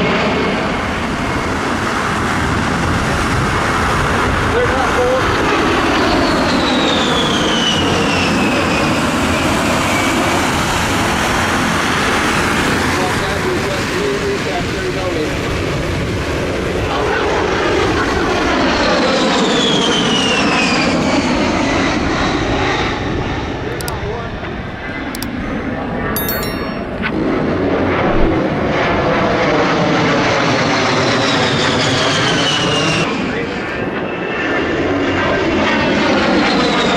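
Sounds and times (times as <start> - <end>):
jet aircraft flying past: 28.6 - 36.9.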